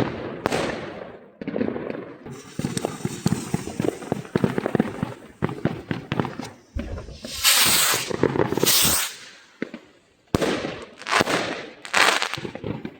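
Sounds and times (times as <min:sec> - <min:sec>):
fireworks crackling pops: 0:00.0 - 0:12.9
firework bang: 0:02.3 - 0:09.8
firework hissing: 0:02.3 - 0:09.8, 0:11.0 - 0:12.4.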